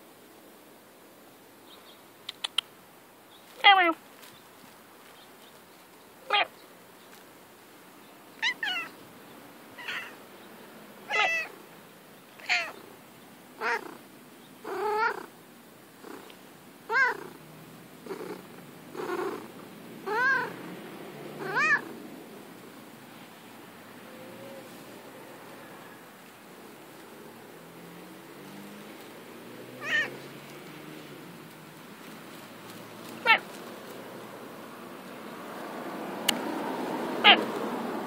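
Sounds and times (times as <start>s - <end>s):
cat meowing: 6.3s - 6.5s, 8.4s - 9.0s, 9.8s - 10.2s, 11.1s - 11.6s, 12.4s - 12.8s, 13.6s - 14.0s, 14.6s - 15.3s, 16.9s - 17.4s, 19.0s - 20.5s, 21.4s - 21.9s, 29.8s - 30.1s, 33.2s - 33.5s, 37.2s - 37.5s.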